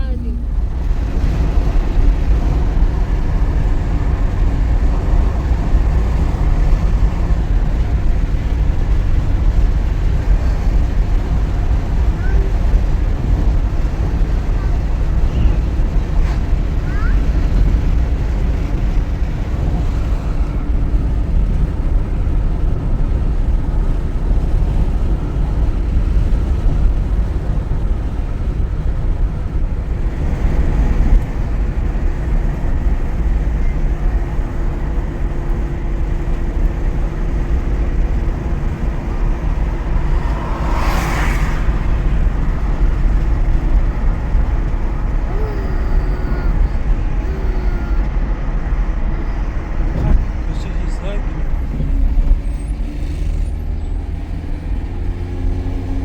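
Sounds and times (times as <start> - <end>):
motor vehicle engine rumble: 0.0 - 56.0.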